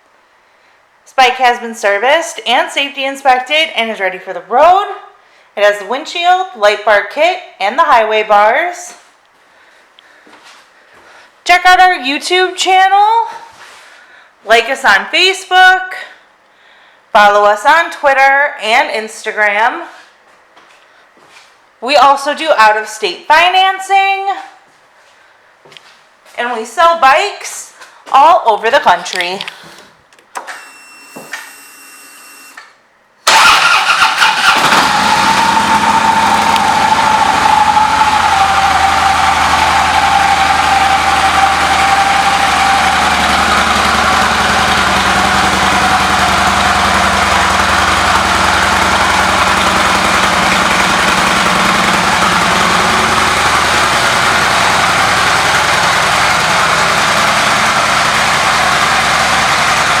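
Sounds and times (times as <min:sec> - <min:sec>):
motorcycle engine starting and idling: 0:33.2 - 1:00.0.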